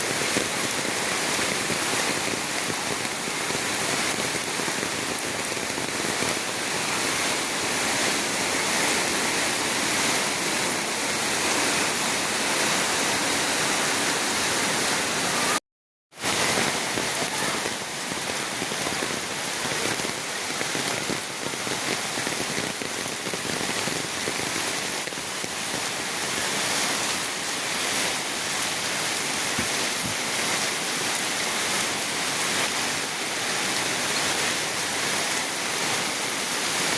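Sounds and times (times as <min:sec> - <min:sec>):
rain falling in storm: 0:00.0 - 0:15.6, 0:16.2 - 0:36.9.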